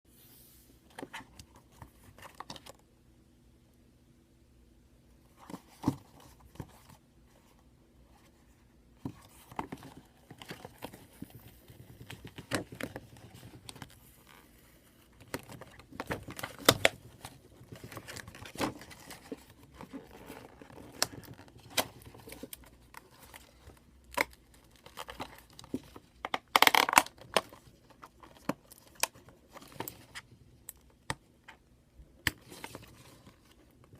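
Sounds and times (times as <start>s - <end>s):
cardboard and plastic rustling: 5.3s - 7.5s, 8.2s - 31.6s, 32.4s - 33.9s
packaging tearing: 26.5s - 27.4s.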